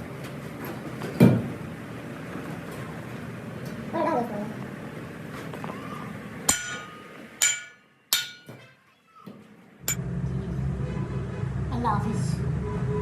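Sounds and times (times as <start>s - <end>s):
metallic ringing: 6.5s - 8.6s, 9.9s - 10.1s.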